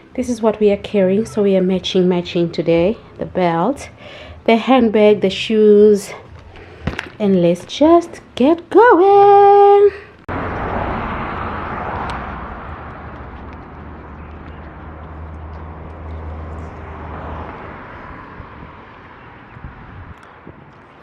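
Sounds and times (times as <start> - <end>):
outdoor traffic noise: 0.0 - 21.0
vehicle engine low rumble: 10.0 - 21.0.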